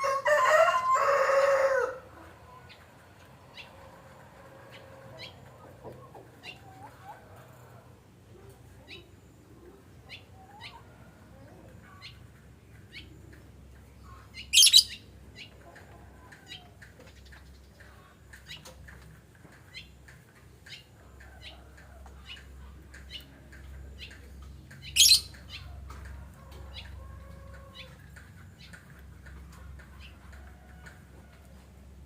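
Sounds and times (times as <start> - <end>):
lovebirds chirping: 8.4 - 18.9, 19.6 - 25.8
bird shrieking: 14.6 - 15.0.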